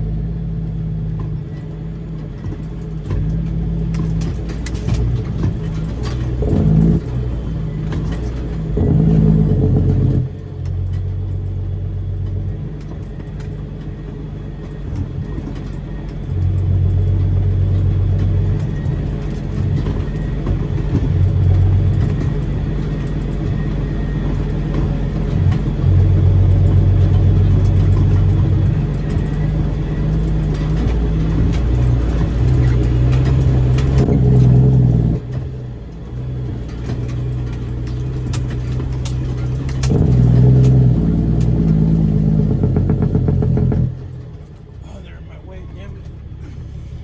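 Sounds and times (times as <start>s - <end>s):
diesel truck engine running: 0.0s - 47.0s.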